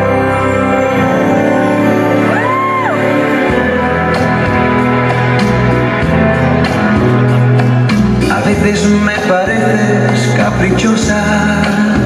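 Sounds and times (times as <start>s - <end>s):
slow bolero dance music: 0.0s - 12.0s
spectator whooping: 1.5s - 3.5s.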